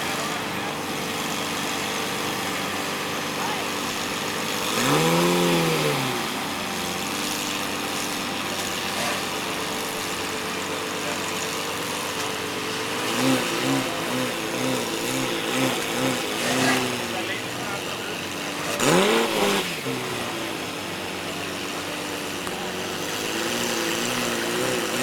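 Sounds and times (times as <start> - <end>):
engine throttle blips: 0.0 - 25.0
sports car engine idling: 6.3 - 24.7.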